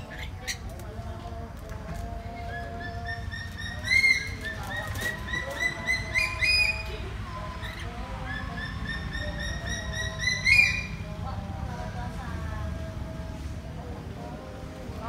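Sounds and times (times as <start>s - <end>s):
parrot chirping: 2.5s - 11.0s.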